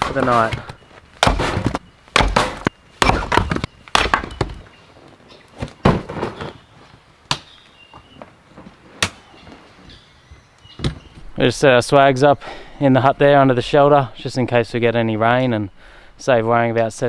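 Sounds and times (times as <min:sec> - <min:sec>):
firewood being chopped: 0:00.0 - 0:04.7, 0:07.3 - 0:07.5, 0:09.0 - 0:09.3.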